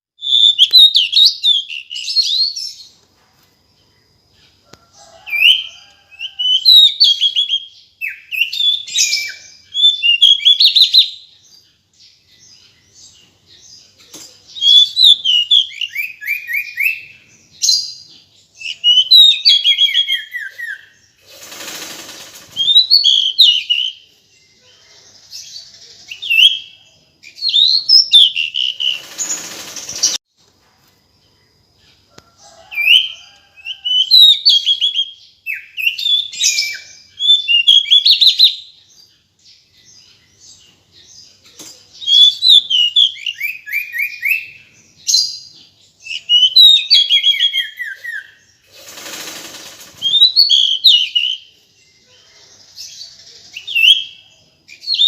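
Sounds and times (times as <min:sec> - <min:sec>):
bird chirps and trills: 0:05.3 - 0:30.2, 0:31.8 - 0:55.0
noisy rustles: 0:21.2 - 0:22.8, 0:28.8 - 0:31.0, 0:48.7 - 0:50.2.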